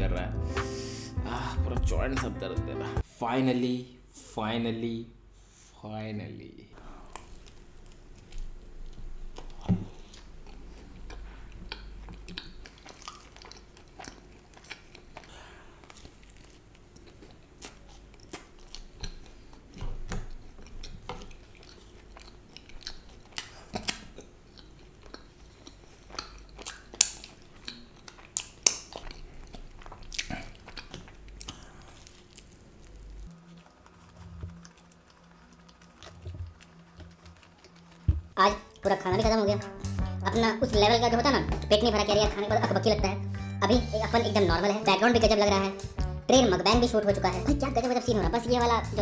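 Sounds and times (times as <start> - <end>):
person chewing food: 6.8 - 39.0.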